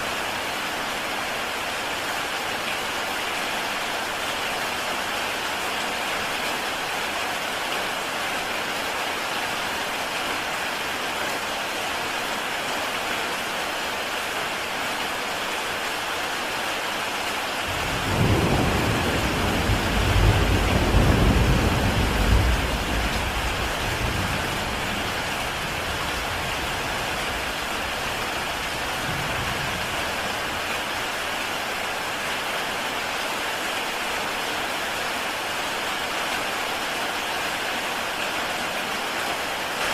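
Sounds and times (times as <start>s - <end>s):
heavy rain on a tile roof: 0.0s - 39.9s
thunder rumble: 17.7s - 26.7s.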